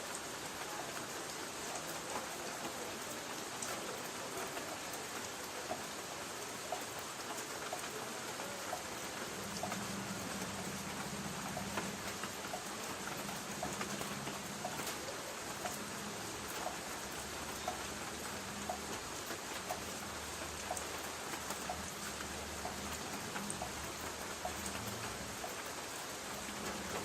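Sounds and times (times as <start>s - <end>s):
rain pattering on a tin roof: 0.0s - 27.0s
light ticking: 9.4s - 25.6s.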